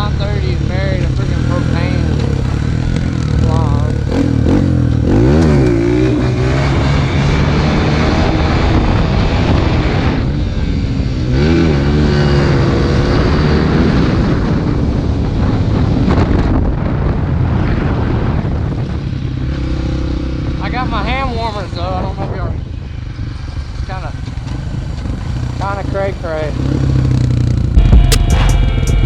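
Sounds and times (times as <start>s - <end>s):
dirt bike engine running: 0.0s - 29.0s.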